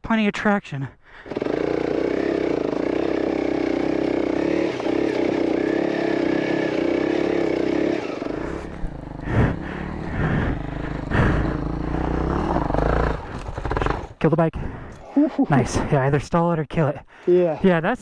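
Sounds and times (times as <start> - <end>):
motorcycle engine running: 8.3 - 14.2.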